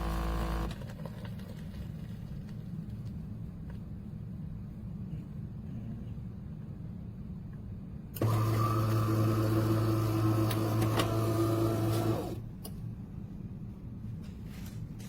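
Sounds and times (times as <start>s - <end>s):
espresso machine humming: 0.0s - 0.8s, 8.2s - 12.4s.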